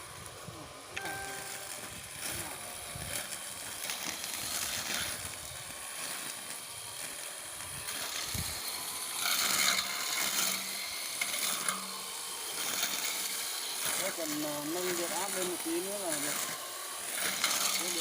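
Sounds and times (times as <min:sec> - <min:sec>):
electric brush cutter cutting grass: 0:00.0 - 0:18.0.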